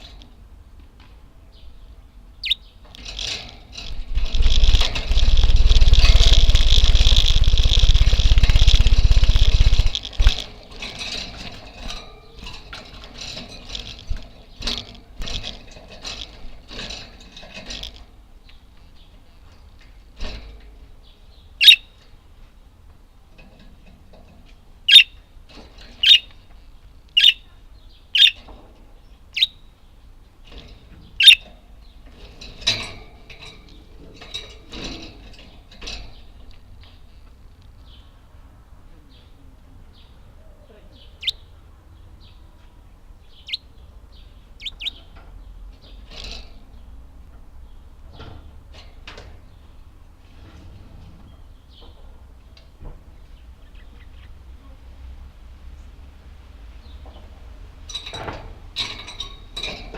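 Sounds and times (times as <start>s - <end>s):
budgerigars chirping: 2.4s - 2.6s, 21.6s - 21.9s, 24.9s - 25.2s, 26.0s - 26.3s, 27.2s - 27.5s, 28.2s - 28.4s, 31.2s - 31.4s, 41.2s - 41.4s, 43.4s - 43.6s, 44.6s - 45.0s.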